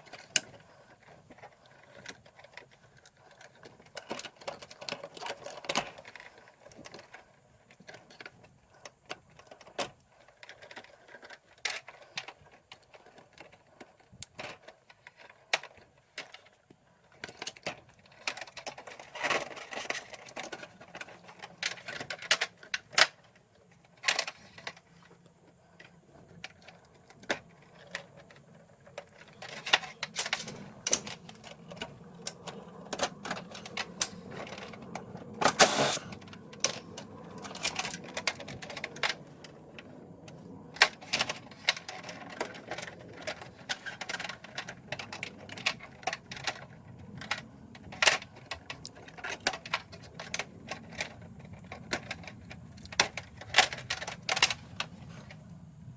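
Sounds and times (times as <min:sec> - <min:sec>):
hand tools clicking and clattering: 0:00.0 - 0:39.4
faint steady hum: 0:00.0 - 0:55.9
metal parts rattling: 0:28.9 - 0:34.8.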